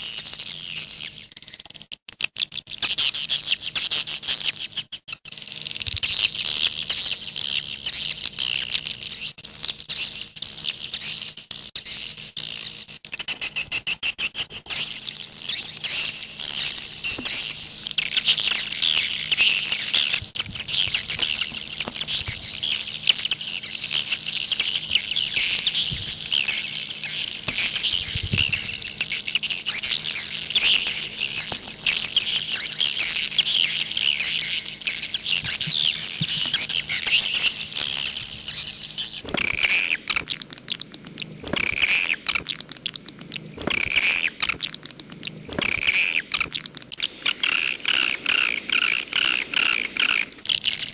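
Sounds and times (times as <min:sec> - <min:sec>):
birds twittering: 0:00.0 - 0:01.7, 0:02.3 - 0:50.9
faint steady hum: 0:02.5 - 0:50.9.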